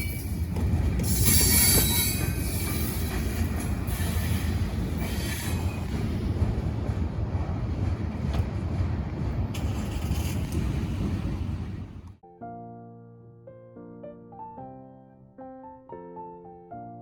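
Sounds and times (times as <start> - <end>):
train wheel squeal: 0.0 - 6.0
train wheels rumbling: 0.0 - 12.2.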